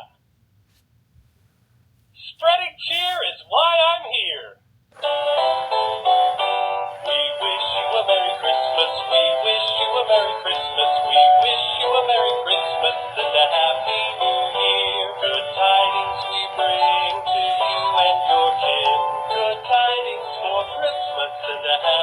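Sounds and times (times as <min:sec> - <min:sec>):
toy playing song with singing: 0:05.0 - 0:22.0.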